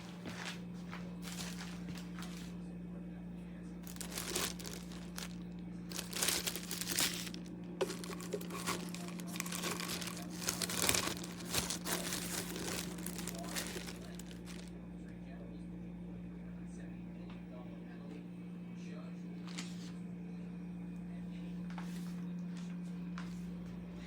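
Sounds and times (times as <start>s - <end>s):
low hum: 1.2s - 17.3s.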